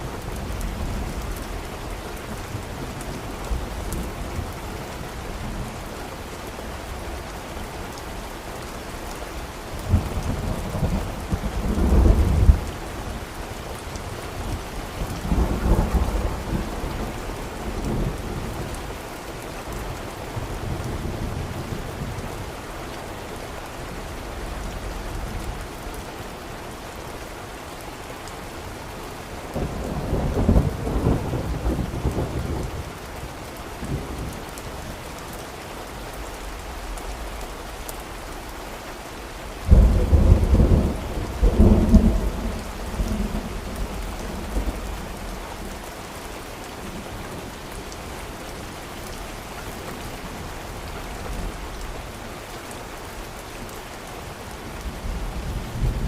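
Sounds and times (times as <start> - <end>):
steady rain: 0.0 - 56.0
thunder rumbling: 39.7 - 45.7.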